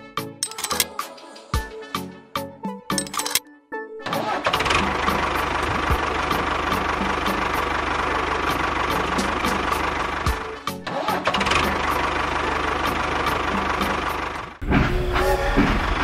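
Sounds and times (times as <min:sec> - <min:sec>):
small engine running: 0:04.4 - 0:14.6.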